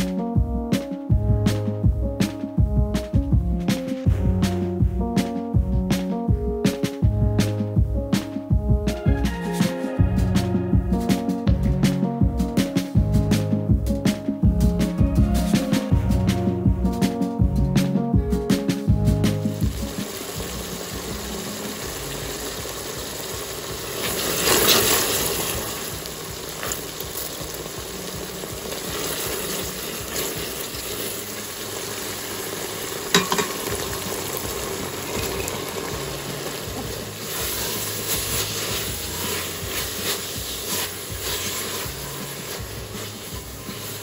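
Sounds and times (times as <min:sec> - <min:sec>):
spices sizzling in oil: 0:08.2 - 0:17.2, 0:18.5 - 0:44.0
spatula scraping pot: 0:35.0 - 0:44.0.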